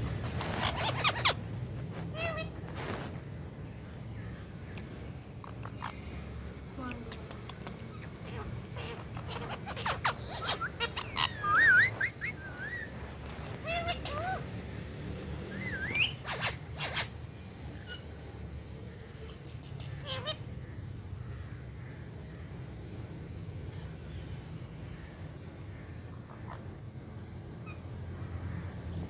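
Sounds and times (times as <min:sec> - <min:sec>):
parakeet whistled calls: 0:00.1 - 0:01.4, 0:07.9 - 0:14.5, 0:15.5 - 0:18.2.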